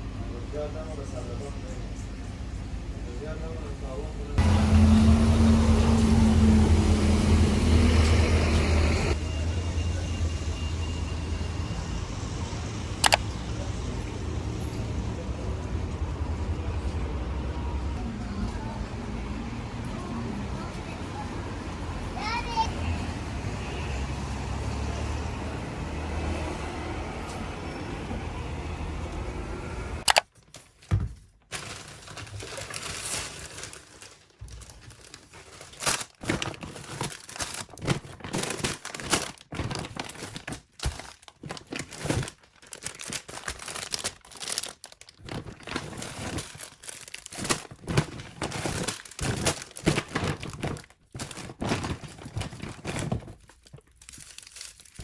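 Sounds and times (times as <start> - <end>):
street traffic rumble: 0.0 - 30.1
plastic bags crinkling and tearing: 30.0 - 55.0.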